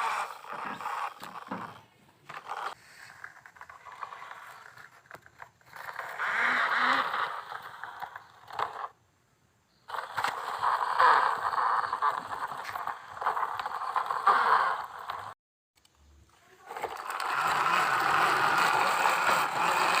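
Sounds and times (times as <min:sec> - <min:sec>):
scraping and rustling: 0:00.0 - 0:06.2.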